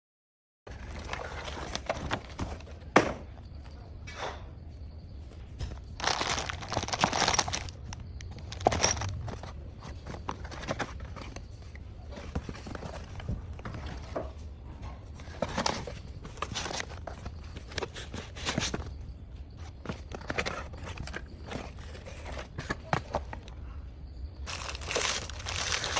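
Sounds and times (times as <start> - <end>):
packaging rustling: 0.7 - 2.7, 5.9 - 11.4, 15.3 - 18.9, 24.5 - 25.9.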